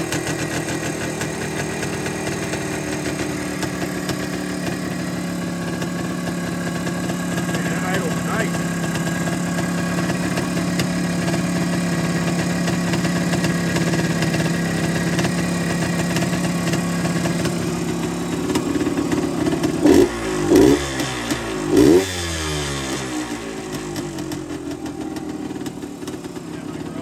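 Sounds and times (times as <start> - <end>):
two-stroke engine idling: 0.0 - 27.0
engine revving blips: 19.8 - 23.4.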